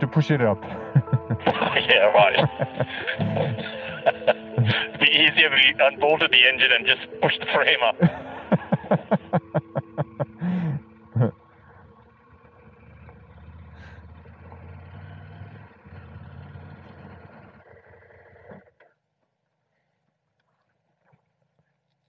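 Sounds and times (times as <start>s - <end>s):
motorcycle engine at low revs: 8.5s - 18.9s.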